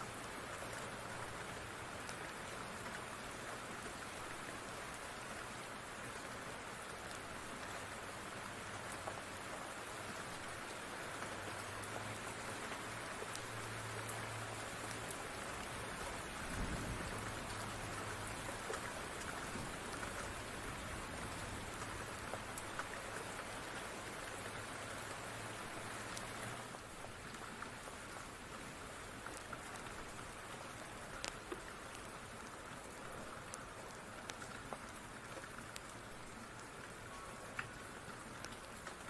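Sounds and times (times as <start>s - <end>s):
steady rain falling: 0.0s - 39.0s
sharp ticks and pops: 30.8s - 32.1s.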